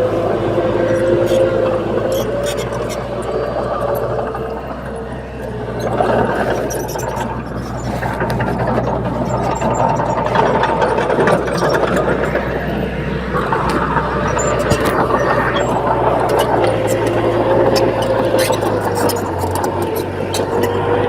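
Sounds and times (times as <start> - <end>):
bulldozer diesel engine running: 0.0 - 21.0
clicks and clanks: 5.7 - 21.0.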